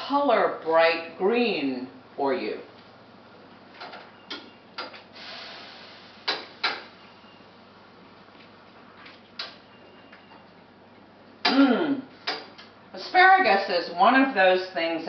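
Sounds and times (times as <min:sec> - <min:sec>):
faint hiss: 0:05.1 - 0:06.9.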